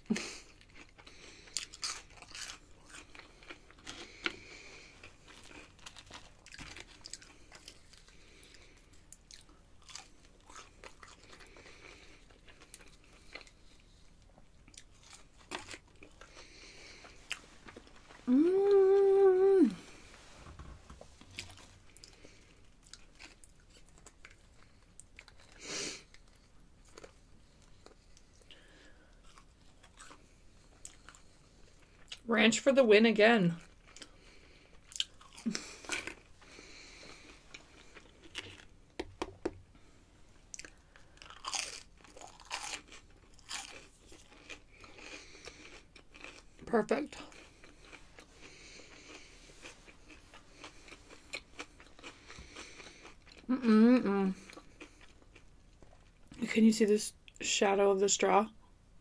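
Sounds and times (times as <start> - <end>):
chewing crispy fries: 0.0 - 20.1, 21.2 - 32.3, 33.5 - 39.1, 39.8 - 56.5.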